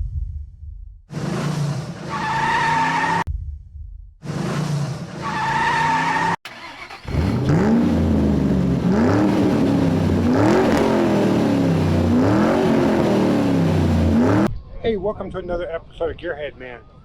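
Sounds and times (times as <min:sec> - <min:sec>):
engine revving: 0:01.1 - 0:03.2, 0:04.2 - 0:14.5
car tyres squealing: 0:01.1 - 0:03.3, 0:04.3 - 0:14.5.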